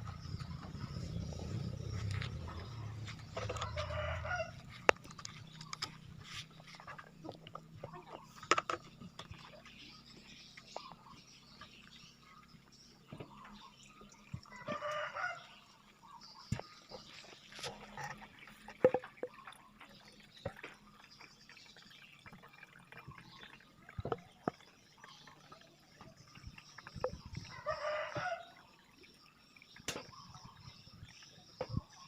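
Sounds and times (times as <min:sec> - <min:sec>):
rooster crowing: 0:03.5 - 0:04.6.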